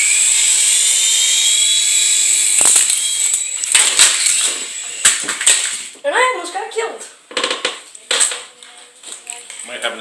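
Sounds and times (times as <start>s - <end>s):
toy helicopter motor whining: 0.0s - 5.9s.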